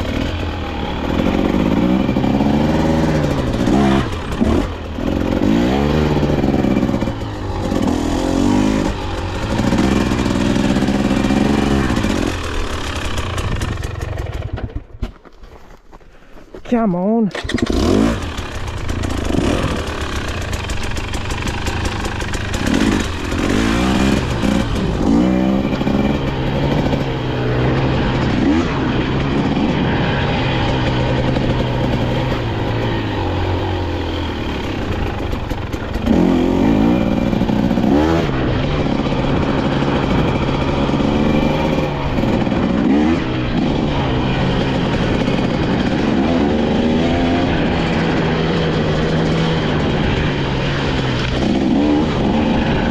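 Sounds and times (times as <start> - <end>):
dirt bike engine revving: 0.0 - 15.0, 17.3 - 52.9.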